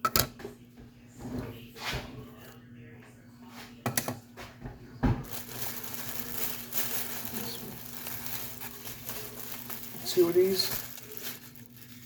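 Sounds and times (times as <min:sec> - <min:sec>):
crinkly paper plate rustling: 0:05.2 - 0:12.0.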